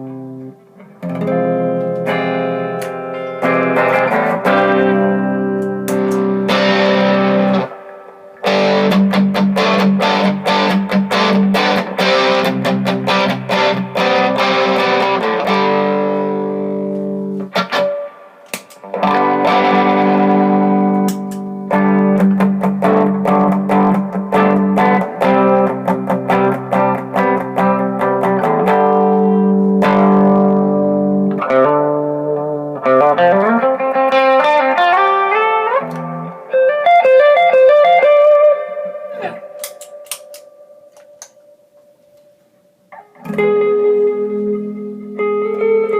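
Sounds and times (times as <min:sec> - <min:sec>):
electric guitar playing: 0:00.0 - 0:45.9.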